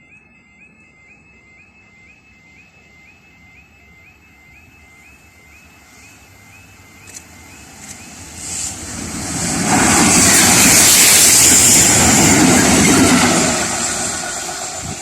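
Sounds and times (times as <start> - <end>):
level crossing warbling alarm: 0.0 - 15.0.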